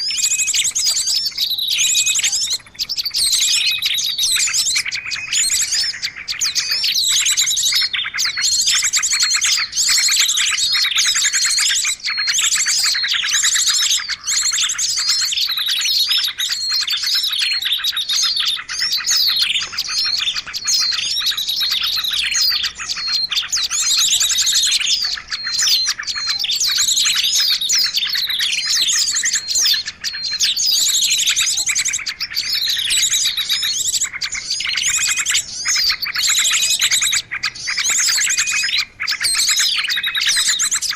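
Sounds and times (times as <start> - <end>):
small songbirds chirping and trilling: 0.0 - 40.9.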